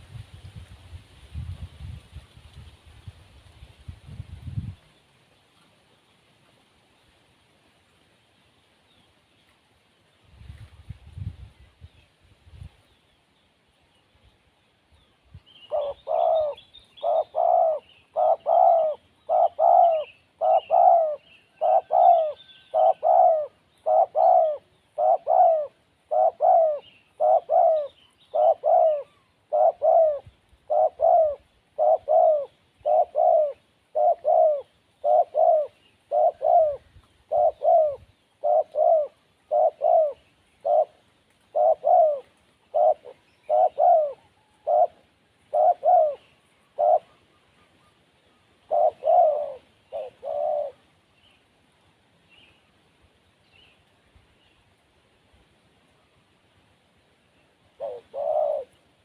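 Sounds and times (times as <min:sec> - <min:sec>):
small birds chirping: 0:11.6 - 0:51.6
dove cooing: 0:15.6 - 0:48.0, 0:48.6 - 0:50.9, 0:57.7 - 0:58.9.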